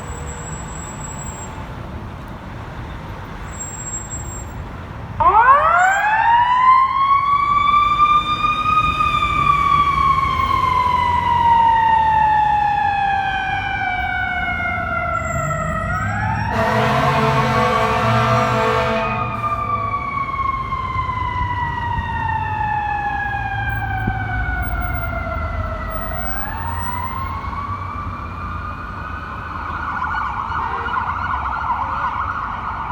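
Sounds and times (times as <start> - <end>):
fire engine siren wailing: 3.5 - 32.9
air horn blast: 16.5 - 20.7
low engine rumble: 16.5 - 24.7.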